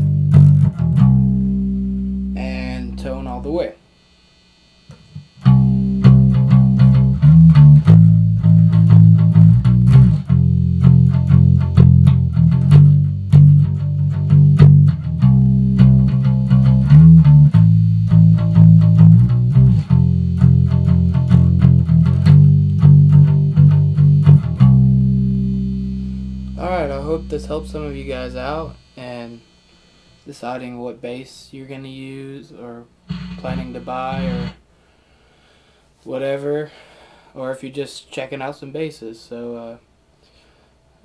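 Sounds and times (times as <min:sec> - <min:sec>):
bass guitar picked riff: 0:00.0 - 0:03.6, 0:04.9 - 0:29.2, 0:33.1 - 0:34.6.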